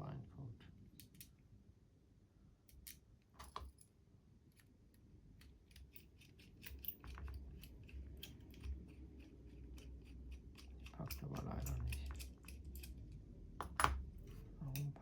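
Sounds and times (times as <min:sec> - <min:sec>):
small metal parts clicking: 0:05.4 - 0:14.0.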